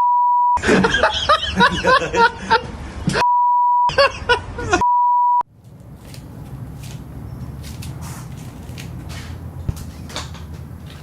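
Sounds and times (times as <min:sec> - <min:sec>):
censor bleep: 0:00.0 - 0:00.6, 0:03.2 - 0:03.9, 0:04.8 - 0:05.4.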